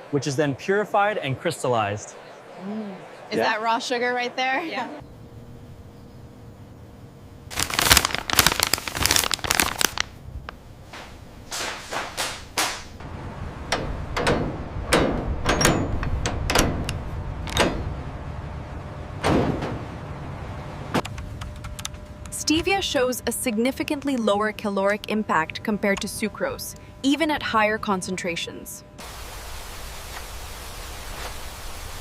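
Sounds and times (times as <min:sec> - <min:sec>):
steady low rumble: 0:12.9 - 0:31.1.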